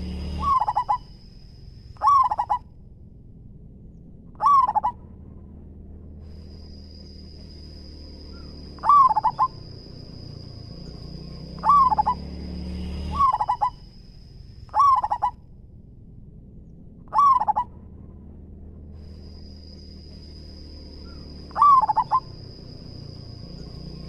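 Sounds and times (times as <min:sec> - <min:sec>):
dove cooing: 0:00.0 - 0:01.2, 0:02.0 - 0:02.6, 0:04.4 - 0:05.0, 0:08.4 - 0:09.7, 0:11.5 - 0:12.2, 0:13.1 - 0:13.8, 0:14.7 - 0:15.4, 0:17.1 - 0:17.7, 0:21.0 - 0:22.4
faint high whine: 0:00.0 - 0:24.0.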